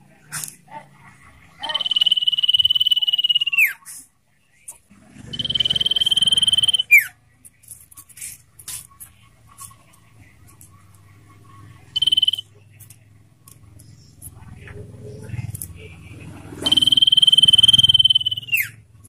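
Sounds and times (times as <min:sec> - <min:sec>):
bird whistled calls: 0:01.6 - 0:03.8, 0:05.3 - 0:07.1, 0:12.0 - 0:12.4, 0:16.6 - 0:18.8.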